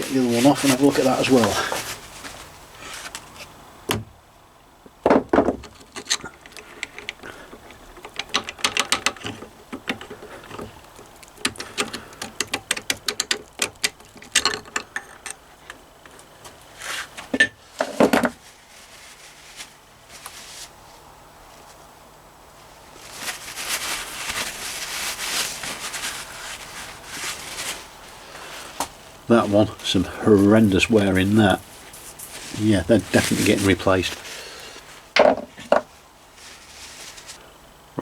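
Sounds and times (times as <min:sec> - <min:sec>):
metal tools clicking and clinking: 0:11.4 - 0:15.8.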